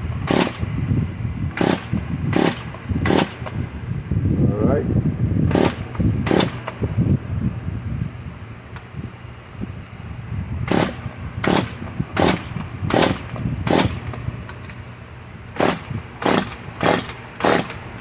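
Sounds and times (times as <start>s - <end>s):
chainsaw starter cord pulls: 0.2s - 0.8s, 1.5s - 3.6s, 5.5s - 6.8s, 10.7s - 15.0s, 15.6s - 18.0s.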